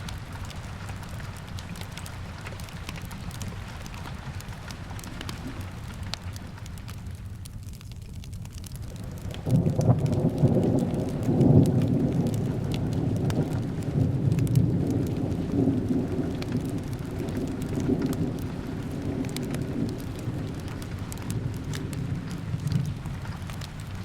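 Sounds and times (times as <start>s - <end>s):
drips and crackles: 0.0s - 24.0s
steady rain: 0.0s - 24.0s
thunder rumbling: 8.8s - 24.0s.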